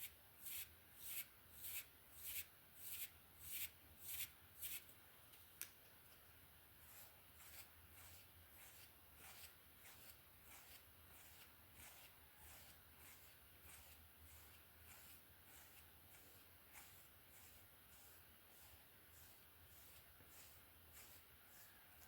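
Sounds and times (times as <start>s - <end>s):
hairbrush strokes through hair: 6.8s - 22.0s.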